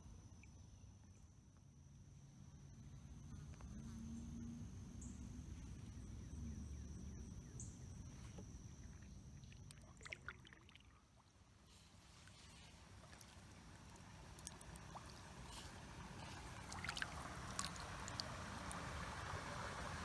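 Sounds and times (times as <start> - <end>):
river current rumble: 12.5 - 20.0.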